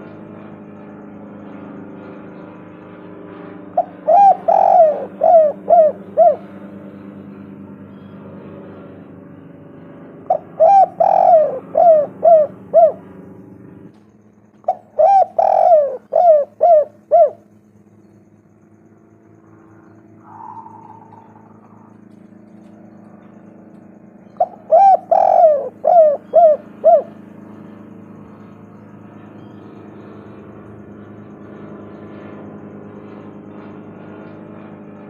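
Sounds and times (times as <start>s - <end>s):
dove cooing: 3.8s - 8.1s, 10.2s - 13.3s, 14.6s - 17.6s, 19.7s - 23.4s, 24.2s - 30.0s.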